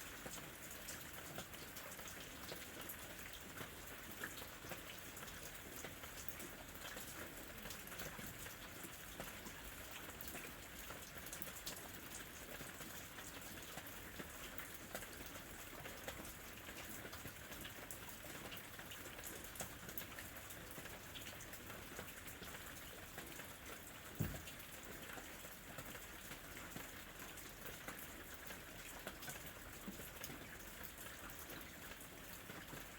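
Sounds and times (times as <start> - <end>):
loud thump: 24.2 - 24.6.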